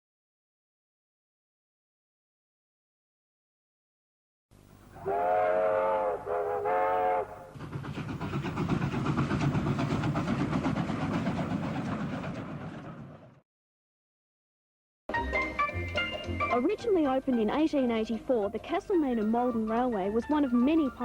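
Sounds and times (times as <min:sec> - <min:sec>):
steam locomotive whistle: 0:05.0 - 0:07.6
locomotive exhaust chuffs: 0:05.0 - 0:13.4.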